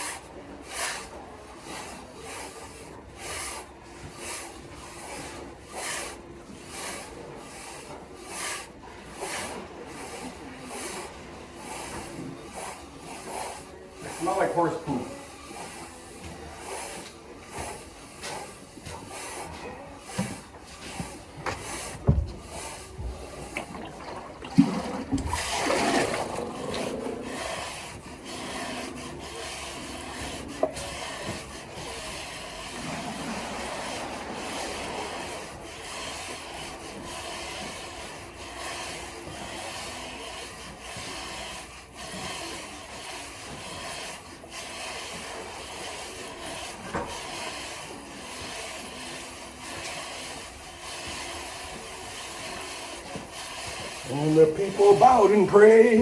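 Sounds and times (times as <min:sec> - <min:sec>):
scraping and rubbing in horse stall: 0:00.0 - 0:56.0.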